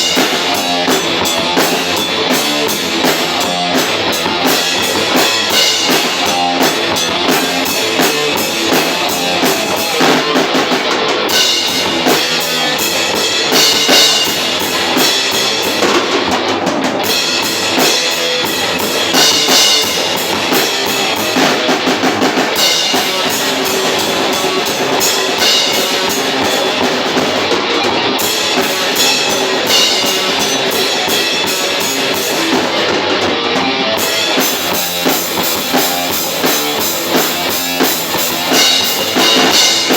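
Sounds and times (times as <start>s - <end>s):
bass guitar: 0.0s - 39.9s
distorted electric guitars: 0.0s - 39.9s
drum kit: 0.0s - 39.9s.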